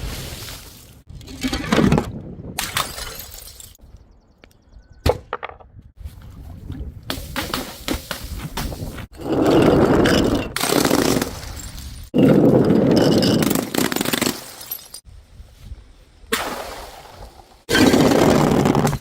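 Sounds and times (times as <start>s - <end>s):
loud crunching and breaking: 17.7s - 19.0s.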